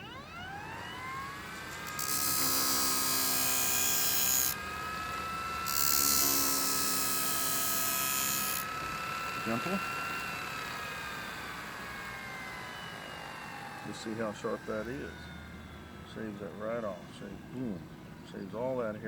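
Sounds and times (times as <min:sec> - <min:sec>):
electric motor whining: 0:00.0 - 0:18.8.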